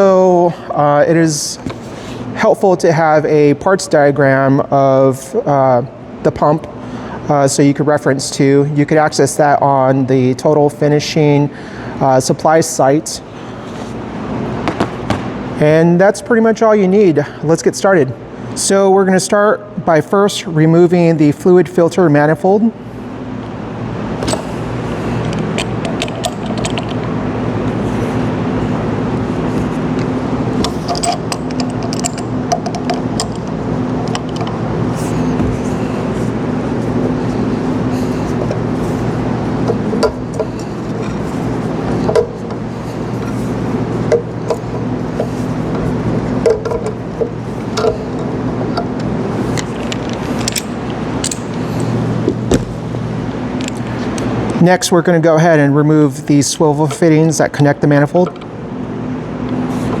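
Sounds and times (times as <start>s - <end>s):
machinery humming: 22.4s - 60.0s
tools tapping on metal: 30.6s - 34.6s.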